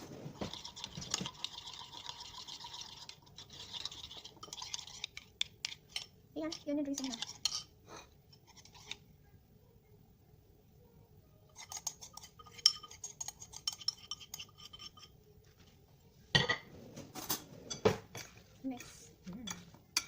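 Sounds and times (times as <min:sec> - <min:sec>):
metal utensil clinking in bowl: 0:04.4 - 0:07.7, 0:11.6 - 0:15.1.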